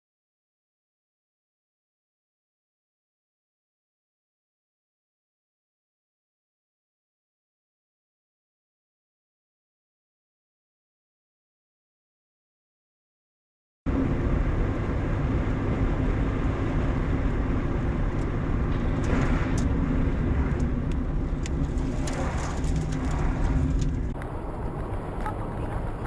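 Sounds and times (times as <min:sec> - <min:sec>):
car engine and tyre noise: 0:13.9 - 0:26.0.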